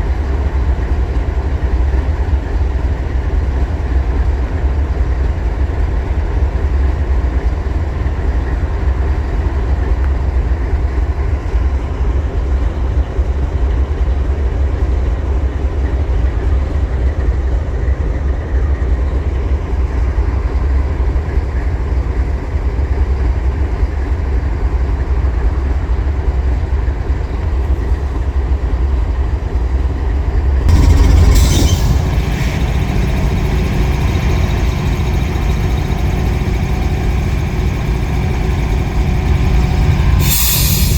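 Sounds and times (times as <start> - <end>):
freight train rumbling by: 0.0 - 40.9
sudden burst of noise: 30.7 - 40.9.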